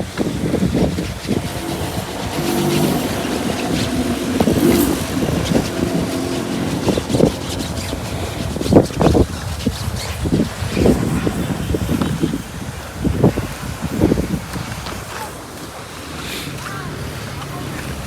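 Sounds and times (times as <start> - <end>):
low rumbling noise: 0.0 - 14.4
vehicle engine running: 0.1 - 12.6.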